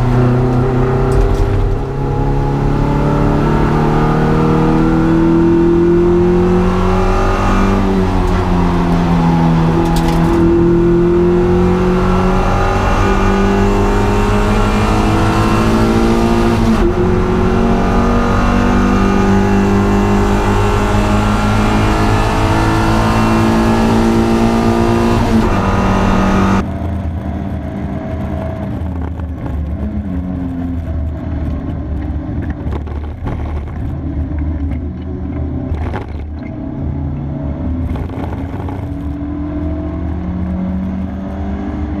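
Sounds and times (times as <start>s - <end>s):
car engine revving hard: 0.0s - 26.6s.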